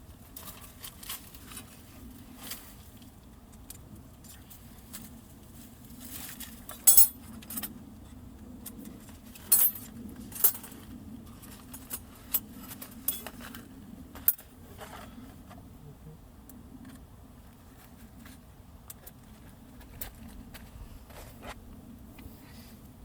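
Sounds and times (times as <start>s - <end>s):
metal camping gear clinking: 0.2s - 2.8s, 6.0s - 7.8s, 8.6s - 15.1s.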